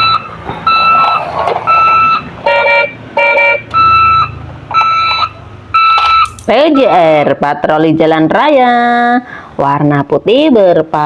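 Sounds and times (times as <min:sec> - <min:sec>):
toy siren beeping: 0:00.0 - 0:07.2.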